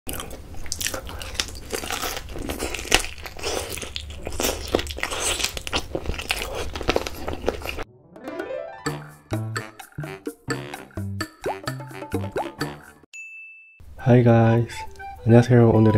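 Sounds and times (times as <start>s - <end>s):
crunchy chewing: 0.1s - 7.8s
rising musical jingle: 7.9s - 12.4s.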